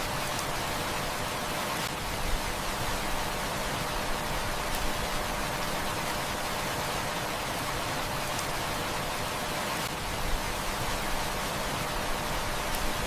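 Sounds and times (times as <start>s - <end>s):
heavy rain: 0.0s - 13.0s
wood fire crackles: 2.0s - 6.2s, 11.8s - 13.0s.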